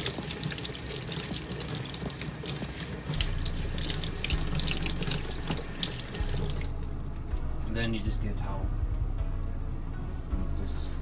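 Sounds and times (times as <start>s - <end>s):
tap water running into sink: 0.0s - 6.8s.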